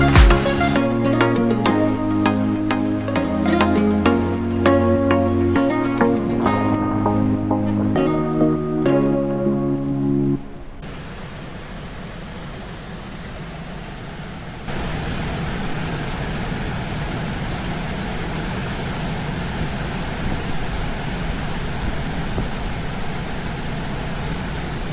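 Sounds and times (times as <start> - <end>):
steady rushing noise: 10.8 - 24.9.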